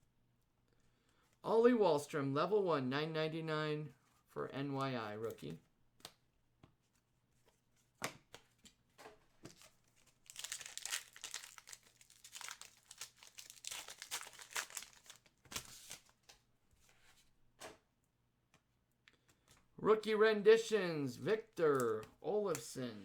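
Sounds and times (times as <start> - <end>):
wrapper crinkling and tearing: 9.5 - 16.3.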